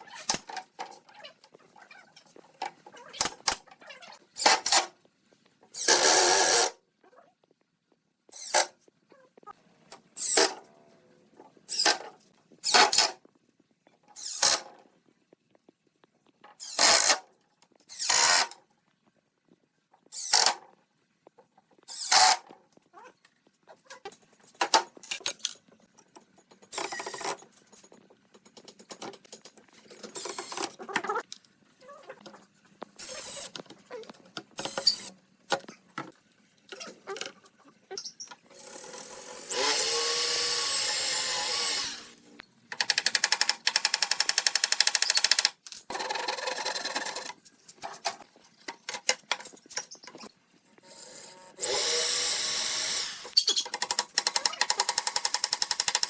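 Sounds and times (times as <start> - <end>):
pulsing power tool: 38.6 - 42.2, 51.0 - 53.4
power tool running steadily: 51.6 - 53.3.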